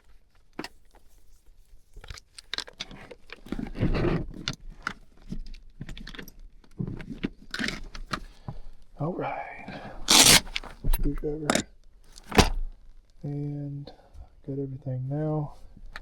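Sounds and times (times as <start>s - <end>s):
hand tools clinking and knocking: 11.4s - 11.7s.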